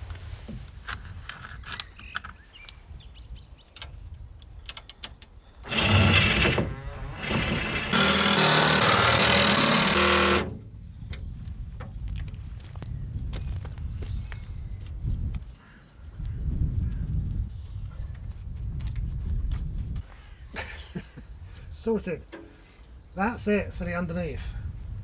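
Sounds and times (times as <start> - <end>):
power tool driving bolts: 5.6 - 10.6.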